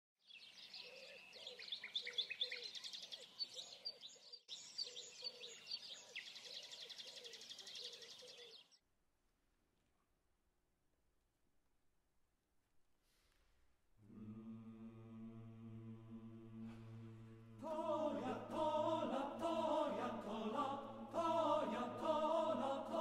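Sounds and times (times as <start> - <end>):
birds chirping and trilling: 0.2 - 8.8.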